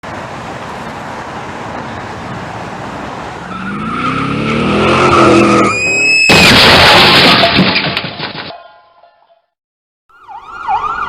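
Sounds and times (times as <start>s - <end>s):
tyres squealing in a skid: 3.4s - 7.6s
car engine revving: 3.5s - 5.8s.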